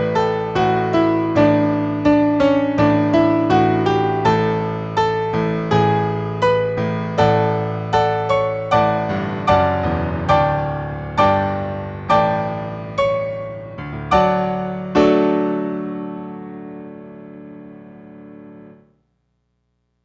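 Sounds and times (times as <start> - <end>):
solo piano playing: 0.0 - 18.9.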